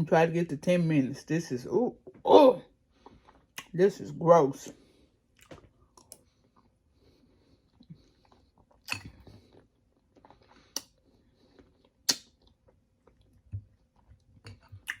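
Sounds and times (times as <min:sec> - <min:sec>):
person chewing crunchy food: 0:04.8 - 0:15.0
sharp mouth clicks: 0:12.1 - 0:12.3.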